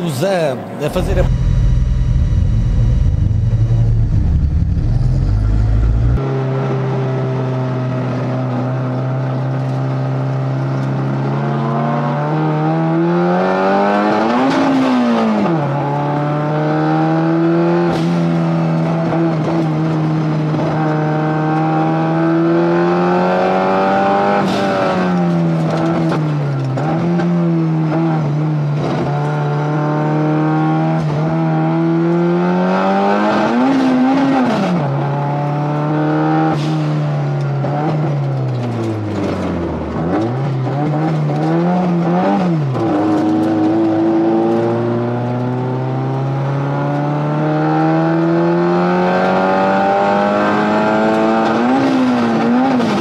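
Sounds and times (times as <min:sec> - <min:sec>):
race car engine under load: 0:00.0 - 0:53.0
low rumble: 0:00.8 - 0:06.2.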